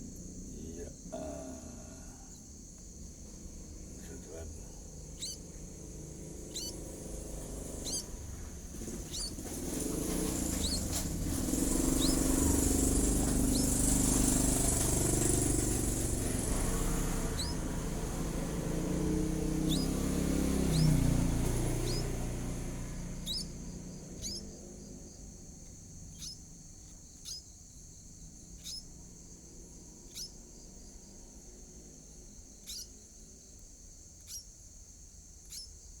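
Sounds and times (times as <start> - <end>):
high insect drone: 0.0 - 36.0
vehicle passing: 3.0 - 26.4.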